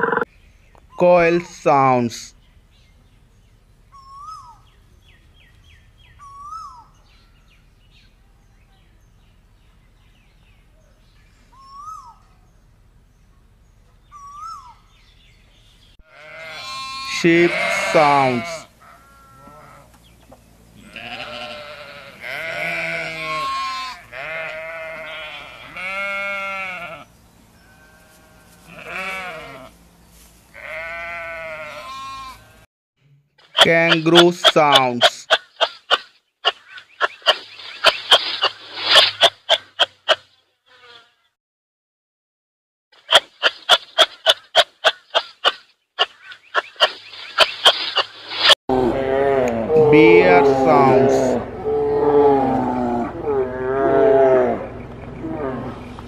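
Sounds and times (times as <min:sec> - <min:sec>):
sheep bleating: 0:16.0 - 0:20.0, 0:20.8 - 0:29.7, 0:30.5 - 0:32.6, 0:48.8 - 0:51.4
kangaroo huffing: 0:35.0 - 0:40.2.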